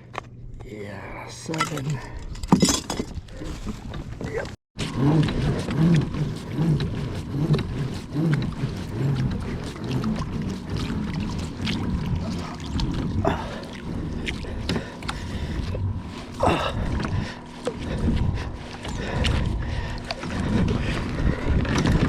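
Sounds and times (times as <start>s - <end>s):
water sloshing around kayak: 3.1s - 22.0s
wind on microphone: 5.0s - 22.0s.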